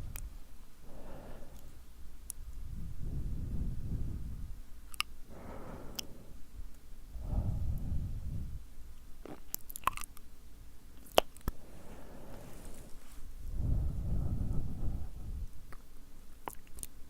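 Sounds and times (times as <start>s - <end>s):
wet lip and tongue clicks: 4.9s - 5.2s, 9.2s - 10.3s, 11.0s - 11.6s, 15.7s - 17.0s.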